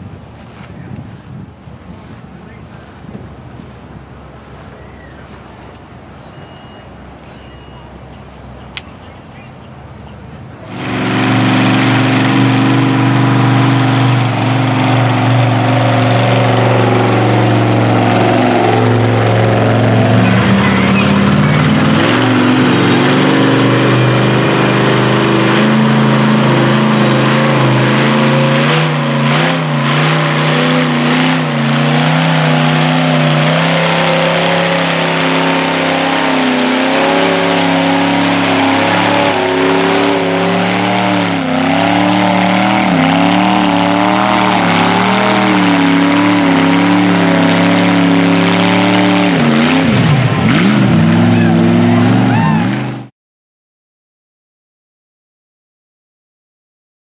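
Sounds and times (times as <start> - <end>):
truck engine revving: 9.8 - 53.1.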